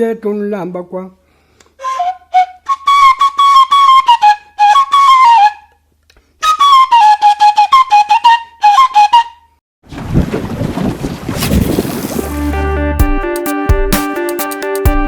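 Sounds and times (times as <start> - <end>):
flute melody: 1.8 - 9.6.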